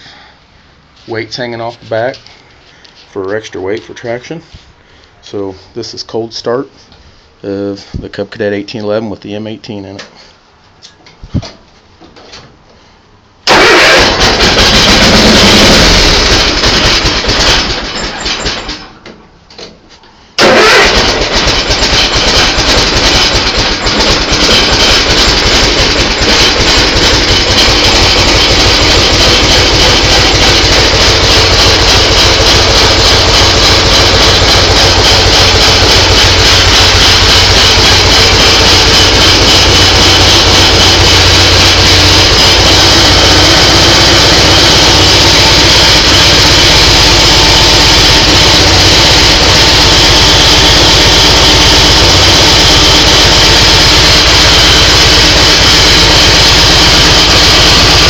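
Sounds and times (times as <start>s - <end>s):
tractor engine running: 13.4s - 19.1s, 20.4s - 58.0s.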